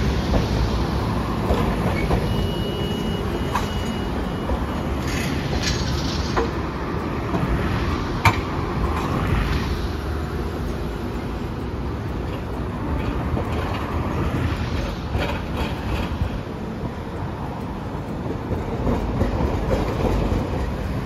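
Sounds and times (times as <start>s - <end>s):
streetcar rumbling past: 0.0s - 21.0s
wheel clacks over rail joints: 0.0s - 21.0s
high-pitched wheel squeal: 1.8s - 6.1s.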